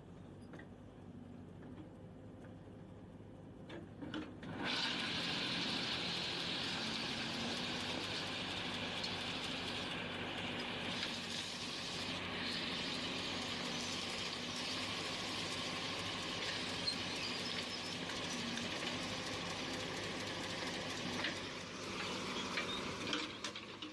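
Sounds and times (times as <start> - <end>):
heavy machinery engine drone: 4.5 - 23.9.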